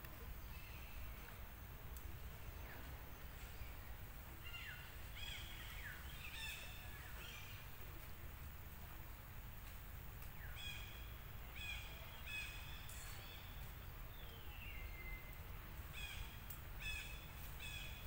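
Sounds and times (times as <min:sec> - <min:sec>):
bird chirping: 0:10.4 - 0:18.0.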